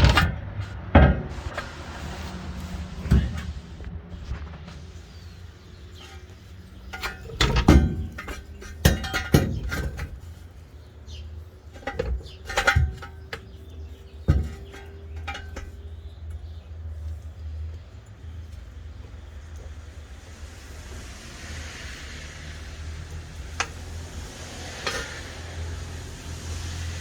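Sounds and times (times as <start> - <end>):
metal tools clanking: 2.8 - 3.7, 5.8 - 17.2, 23.1 - 27.0.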